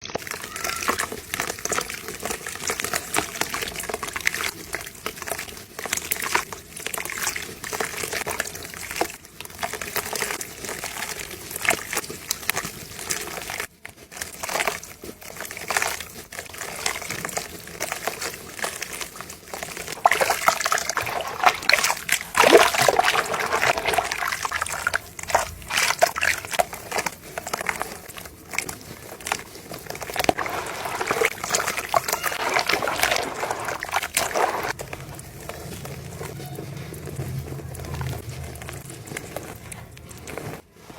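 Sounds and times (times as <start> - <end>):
cement crumbling into water: 15.4 - 36.2.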